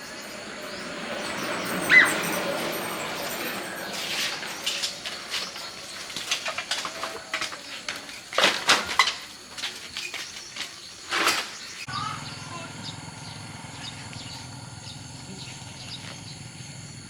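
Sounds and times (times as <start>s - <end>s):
clinks and knocks of scrap: 2.8s - 11.9s.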